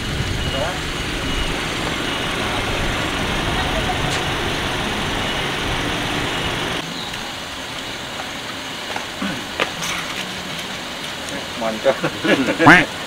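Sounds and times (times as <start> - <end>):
car engine idling: 0.0 - 12.2.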